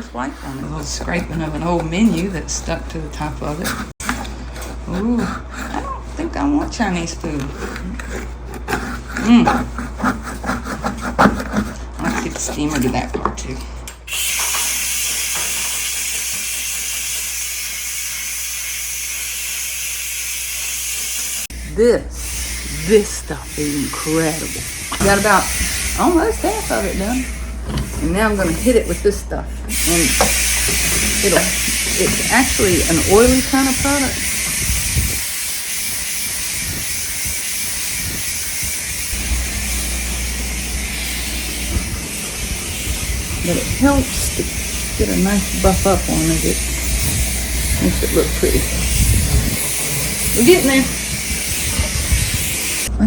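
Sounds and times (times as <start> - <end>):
steamer hissing steam: 14.1 - 53.0.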